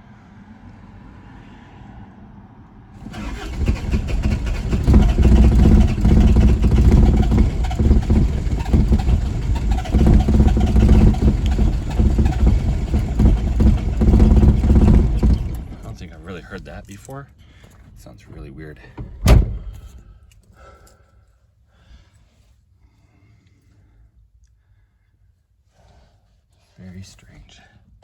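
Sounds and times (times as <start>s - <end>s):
diesel engine running unsteadily: 3.0s - 17.1s
starter motor cranking: 3.0s - 17.1s.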